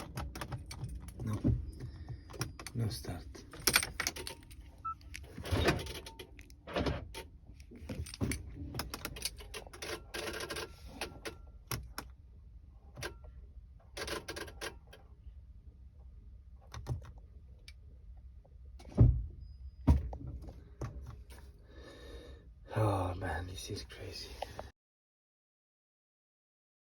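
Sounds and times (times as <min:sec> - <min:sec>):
keys jingling and rattling: 0:00.0 - 0:01.4, 0:02.3 - 0:10.6
hard parts clicking and knocking: 0:00.0 - 0:12.0.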